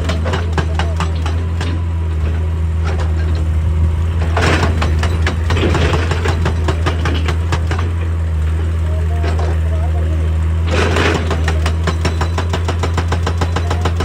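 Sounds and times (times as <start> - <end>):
metal clanks and rattling: 0.0 - 9.8, 10.6 - 14.0
excavator diesel engine humming: 0.0 - 14.0.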